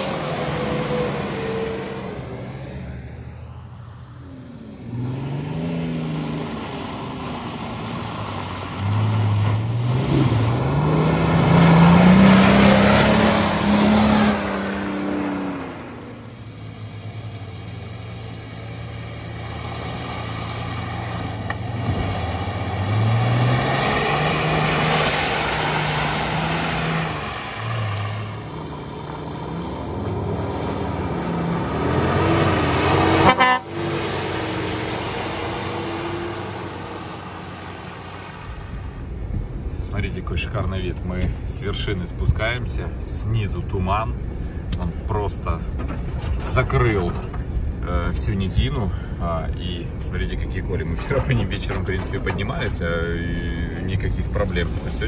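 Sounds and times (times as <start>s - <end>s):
off-road vehicle engine revving: 0.0s - 39.2s.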